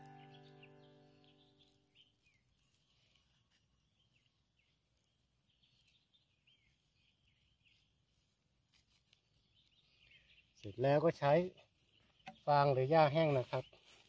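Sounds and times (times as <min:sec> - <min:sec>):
held music note: 0:00.0 - 0:01.7
faint bird chirps: 0:00.0 - 0:14.0.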